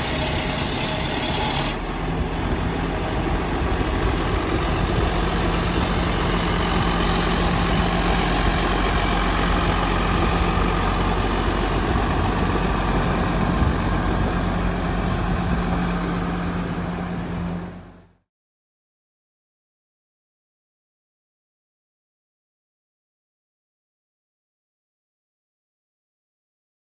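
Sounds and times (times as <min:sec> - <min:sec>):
tractor diesel engine idling: 0:00.0 - 0:18.2.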